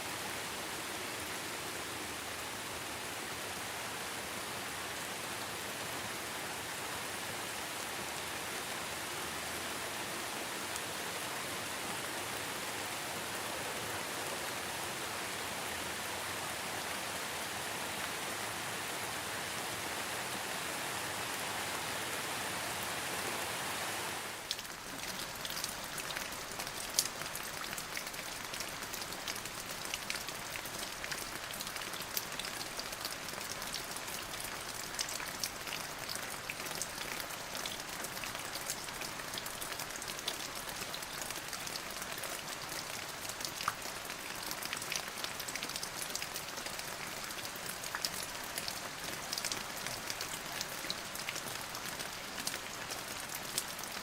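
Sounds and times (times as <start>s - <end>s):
rain falling on a surface: 0.0s - 54.0s
close raindrops striking: 24.4s - 54.0s.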